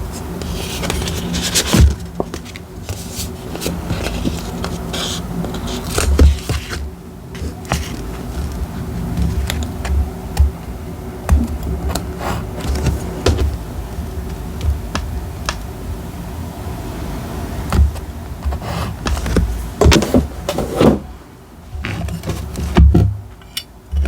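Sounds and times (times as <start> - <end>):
paper rustling and scraping: 0.0 - 10.1, 11.3 - 13.6, 17.8 - 21.1, 21.8 - 22.9
steady low hum: 0.0 - 24.0.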